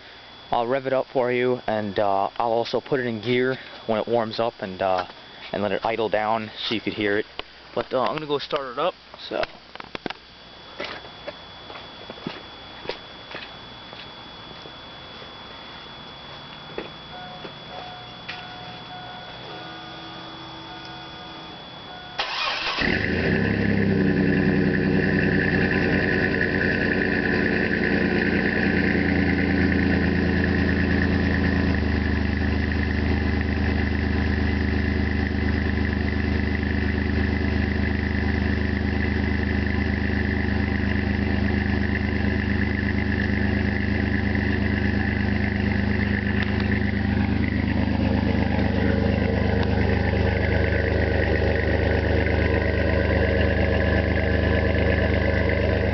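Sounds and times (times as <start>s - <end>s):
engine starting and idling: 22.0s - 55.9s.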